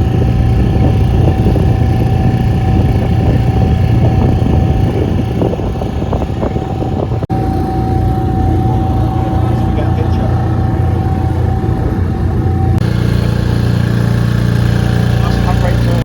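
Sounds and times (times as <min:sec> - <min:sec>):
motorboat engine running: 0:00.0 - 0:16.0.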